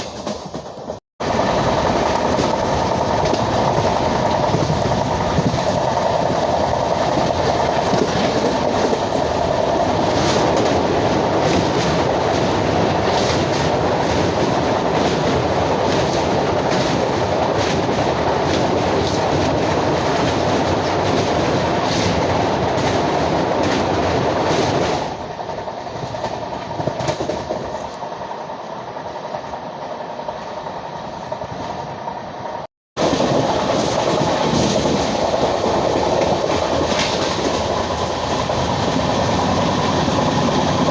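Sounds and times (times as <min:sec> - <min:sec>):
train rumbling at speed: 0:00.0 - 0:40.9
wheels clicking over rail joints: 0:00.0 - 0:40.9.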